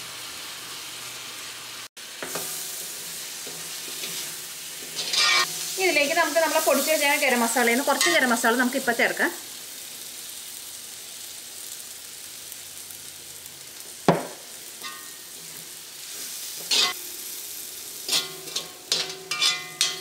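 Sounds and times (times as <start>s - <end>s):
food sizzling in oil: 0.0s - 20.0s
metal spatula scraping pan: 2.2s - 5.8s, 16.2s - 17.0s, 18.1s - 20.0s.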